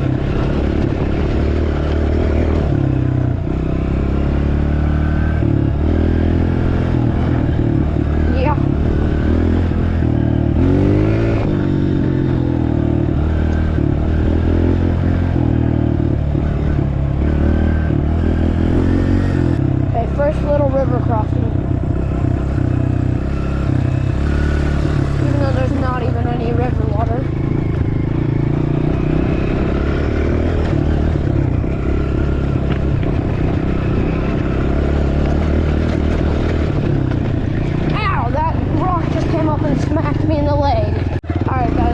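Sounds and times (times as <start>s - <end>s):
dirt bike engine revving: 0.0s - 41.9s
clattering riding noise: 18.6s - 41.9s.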